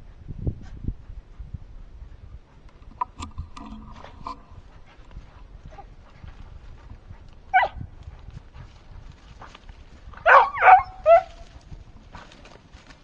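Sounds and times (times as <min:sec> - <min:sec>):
dog yelping: 0:07.5 - 0:07.8, 0:10.2 - 0:11.4.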